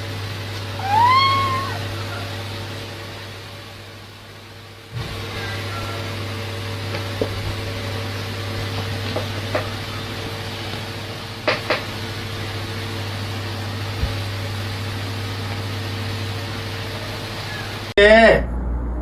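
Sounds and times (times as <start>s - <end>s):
steady low hum: 0.0s - 19.0s
cat meowing: 0.8s - 2.3s.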